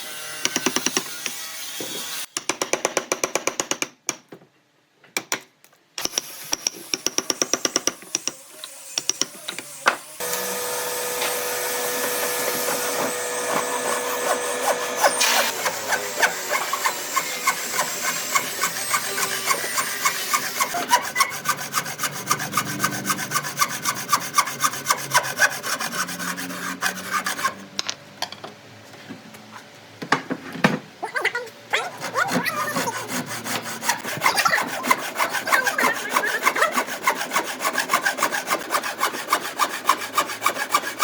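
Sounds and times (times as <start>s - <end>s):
rasping wood by hand: 10.2s - 27.6s, 31.9s - 41.0s.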